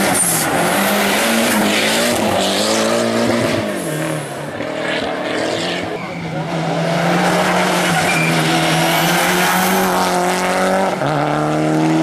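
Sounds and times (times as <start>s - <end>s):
race car engine revving: 0.0s - 12.0s
tyre squeal: 7.8s - 10.0s.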